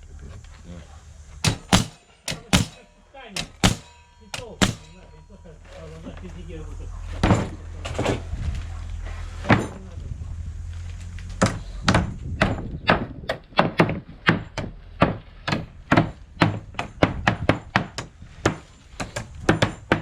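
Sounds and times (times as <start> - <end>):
sharp knocks: 1.4 - 5.2.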